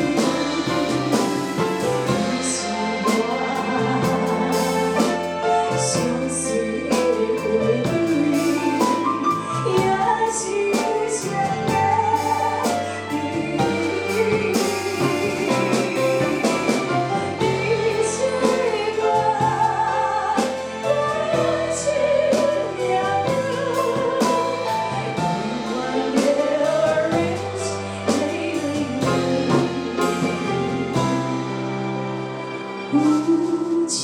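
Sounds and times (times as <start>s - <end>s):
person singing: 0.0s - 31.6s
instrumental backing with beat: 0.0s - 34.0s.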